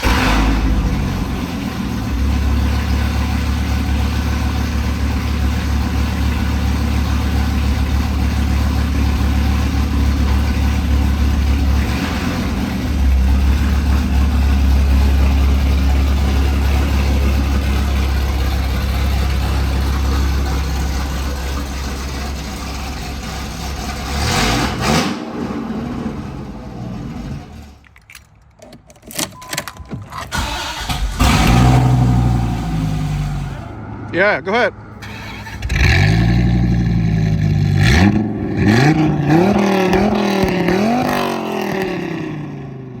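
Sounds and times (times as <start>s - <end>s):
car engine idling: 0.0s - 27.9s, 30.3s - 43.0s.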